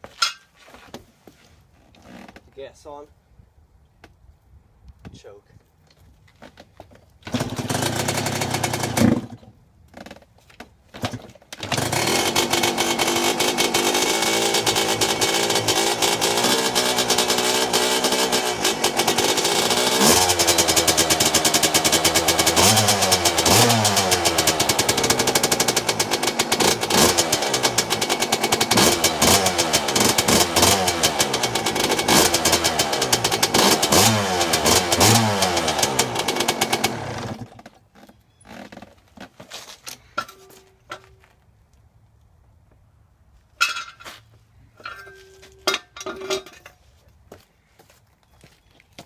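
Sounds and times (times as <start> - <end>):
two-stroke engine revving in blips: 7.3 - 9.4, 11.6 - 37.6.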